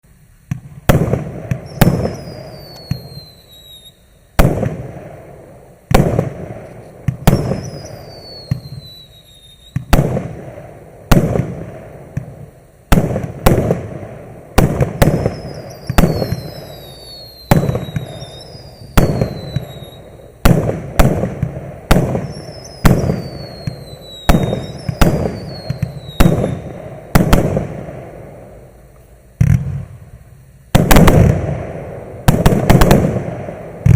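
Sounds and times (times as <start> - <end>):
firework bangs: 0.4 - 33.9
high falling whistle: 1.5 - 4.2, 7.3 - 9.9, 15.2 - 20.4, 22.2 - 26.8.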